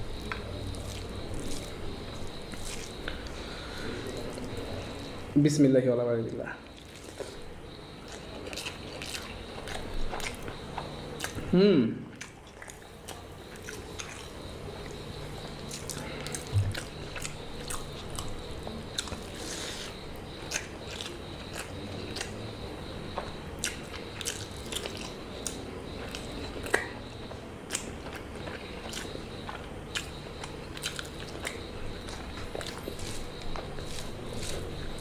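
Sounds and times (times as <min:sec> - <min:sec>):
chewing and biting chicken: 0:00.0 - 0:05.2, 0:06.6 - 0:11.5, 0:12.1 - 0:35.0
faint steady hum: 0:00.0 - 0:35.0
wet mouth clicks: 0:23.6 - 0:26.9, 0:27.7 - 0:28.2.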